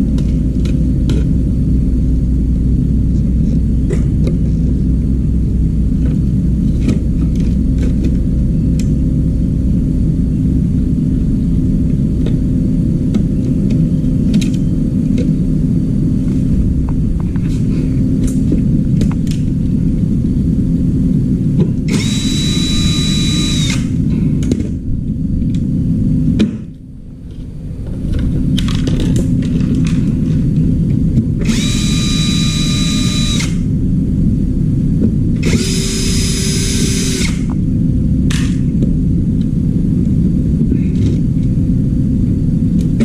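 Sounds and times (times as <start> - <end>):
low rumble: 0.0 - 43.0
power tool motor whining: 21.9 - 24.0, 31.4 - 33.7, 35.4 - 37.6.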